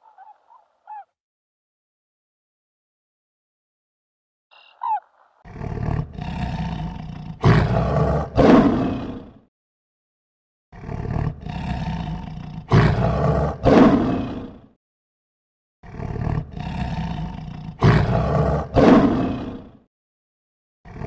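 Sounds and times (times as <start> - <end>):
lion roaring: 5.5 - 9.4, 10.8 - 14.7, 15.8 - 19.9.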